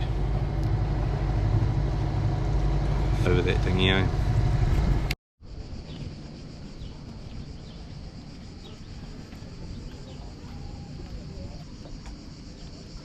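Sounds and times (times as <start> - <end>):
outboard motor running: 0.0 - 5.2
insect buzz: 4.7 - 13.0.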